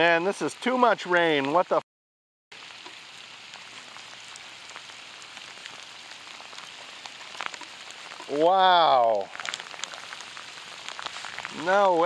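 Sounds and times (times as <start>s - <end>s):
heavy rain on lake water: 2.5s - 12.0s.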